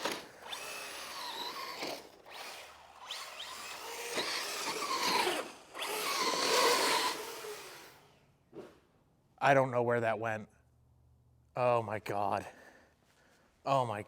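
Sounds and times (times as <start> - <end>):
rc car motor whining: 0.0 - 8.1.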